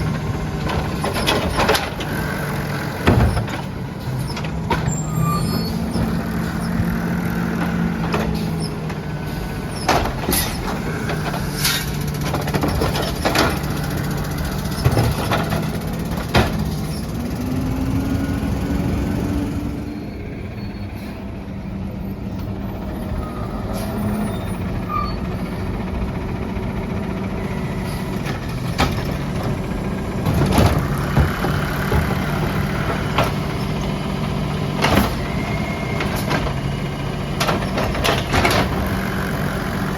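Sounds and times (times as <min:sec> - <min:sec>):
sharp knocks and clanks: 0:00.0 - 0:05.0, 0:09.8 - 0:17.1, 0:28.2 - 0:29.6, 0:30.2 - 0:33.9, 0:34.7 - 0:36.7, 0:37.3 - 0:39.3
garbage truck engine humming: 0:00.0 - 0:39.9.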